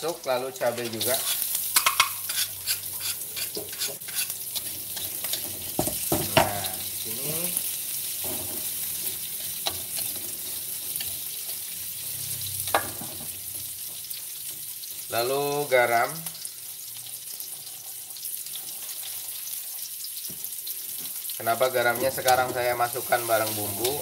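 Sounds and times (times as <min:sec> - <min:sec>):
vegetables sizzling in a wok: 0:00.0 - 0:24.0
metal spatula scraping a pan: 0:00.8 - 0:06.1, 0:08.0 - 0:13.3.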